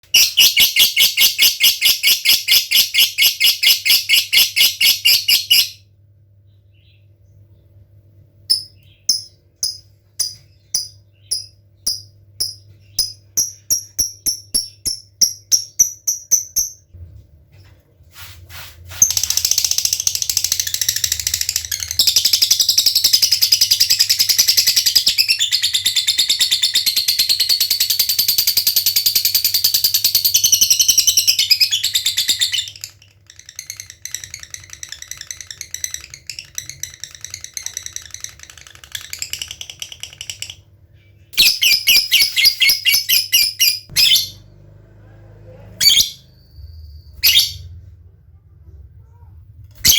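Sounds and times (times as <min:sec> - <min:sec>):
lovebird chirps: 0:00.2 - 0:05.8, 0:08.5 - 0:16.8, 0:41.0 - 0:44.4, 0:45.8 - 0:47.8
lovebird chattering trill: 0:41.4 - 0:44.3.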